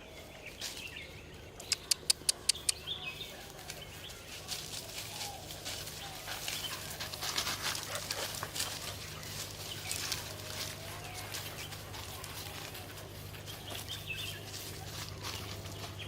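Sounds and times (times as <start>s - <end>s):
birds chirping: 0.0s - 16.0s
sharp clicks: 1.6s - 2.8s.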